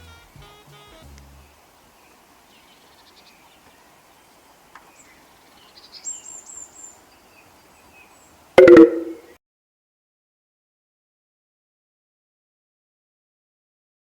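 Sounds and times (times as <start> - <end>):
high rising bird chirps: 8.6 - 9.3
very loud pitched blast: 8.6 - 9.3.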